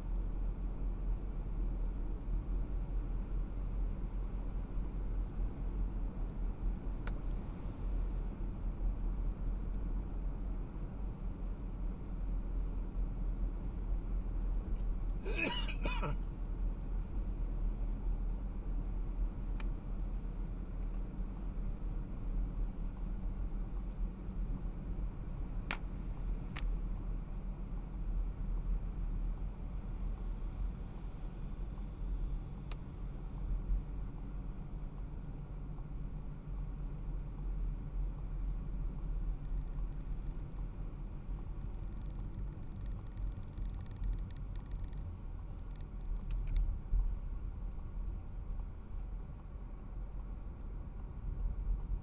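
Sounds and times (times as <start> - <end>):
car road and engine rumble: 0.0 - 52.0
faint rapid ticking: 34.5 - 46.6
sharp clicks: 41.4 - 46.7.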